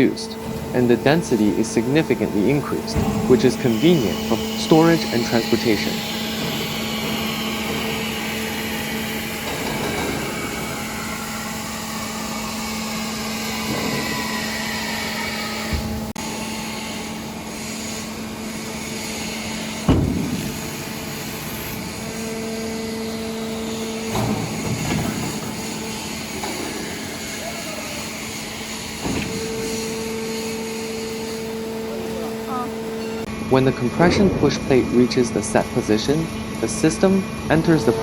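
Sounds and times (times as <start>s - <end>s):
hydraulic power unit humming: 0.0s - 38.0s.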